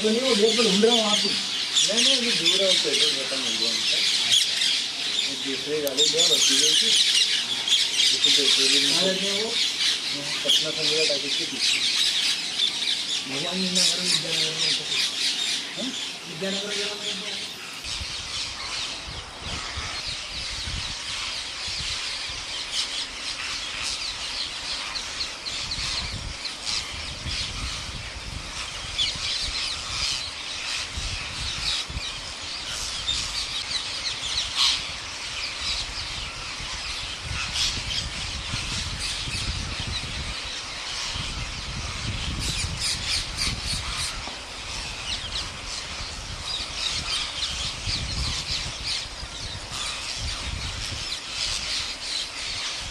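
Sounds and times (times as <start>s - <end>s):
parrots screeching: 34.2s - 52.8s.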